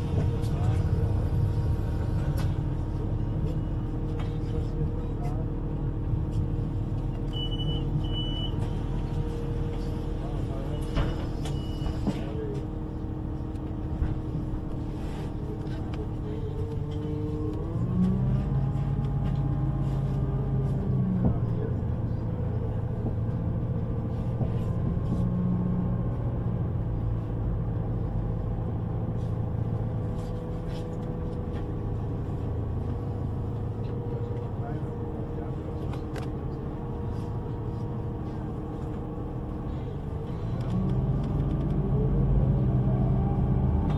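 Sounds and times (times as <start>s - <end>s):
vehicle engine rumble: 0.0s - 43.9s.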